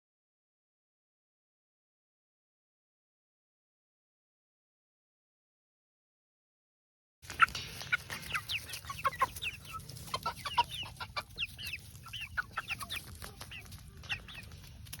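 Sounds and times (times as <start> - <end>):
young chickens cheeping: 7.3 - 15.0.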